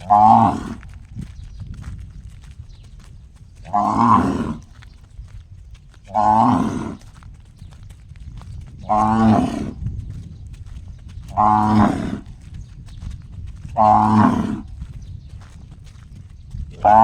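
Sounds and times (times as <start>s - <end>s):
cow mooing: 0.0s - 0.8s, 3.7s - 4.6s, 6.1s - 7.0s, 8.9s - 9.7s, 11.3s - 12.2s, 13.8s - 14.6s.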